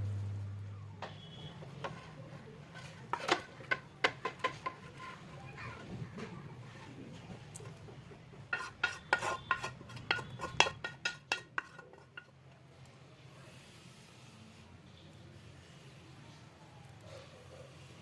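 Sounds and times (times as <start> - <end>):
low steady hum: 0.0 - 3.0
spoon clinking against cookware: 8.5 - 12.4.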